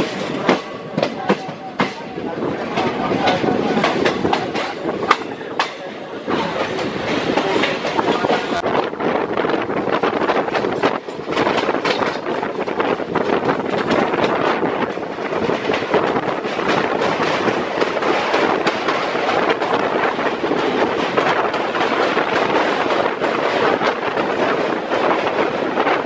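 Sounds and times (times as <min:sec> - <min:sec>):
wheels clacking over rails: 0:00.0 - 0:08.6, 0:09.8 - 0:26.0
train rushing on track: 0:00.0 - 0:26.0.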